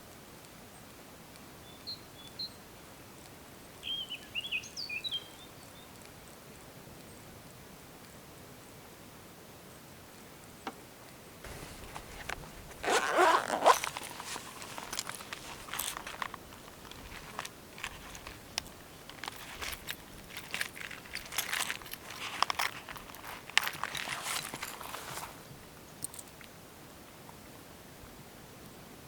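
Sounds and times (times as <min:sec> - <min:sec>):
scraping: 0:11.5 - 0:25.4
rustling and crinkling handling: 0:11.5 - 0:26.2.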